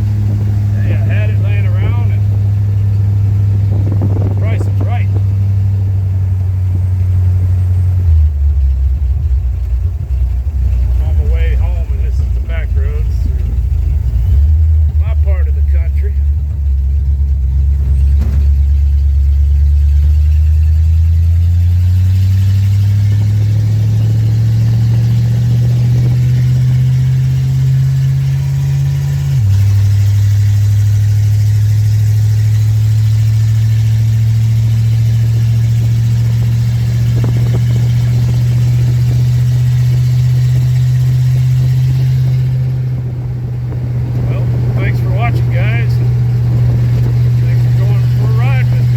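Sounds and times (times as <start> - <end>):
truck engine accelerating: 0.0 - 48.9.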